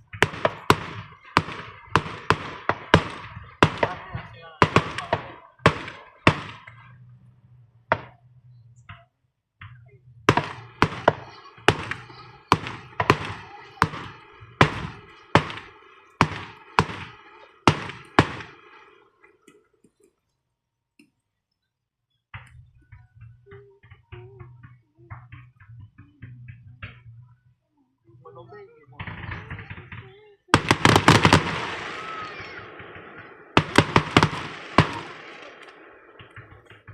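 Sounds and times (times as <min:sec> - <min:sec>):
fireworks bangs: 0:00.0 - 0:07.1, 0:07.9 - 0:08.2, 0:09.6 - 0:19.6, 0:28.5 - 0:36.9.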